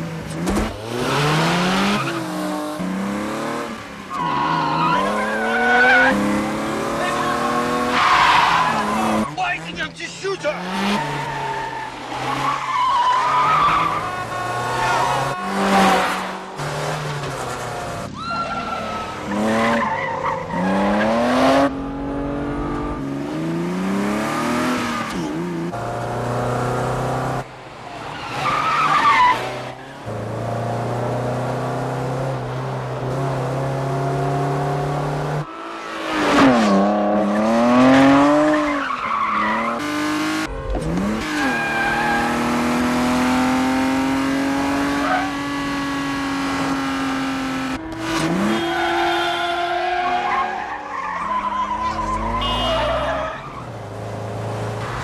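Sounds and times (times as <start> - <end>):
car engines revving: 0.0 - 55.0
tyres squealing: 48.1 - 53.8.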